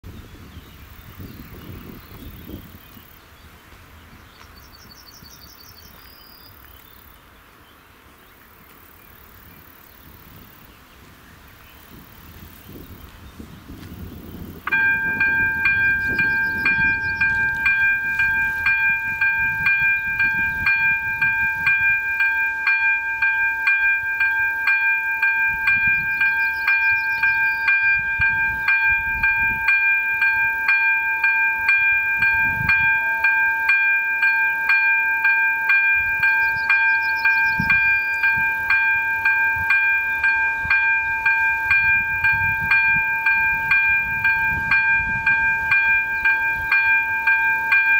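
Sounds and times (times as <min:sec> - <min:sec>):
level crossing warning bell: 0:14.6 - 0:47.9.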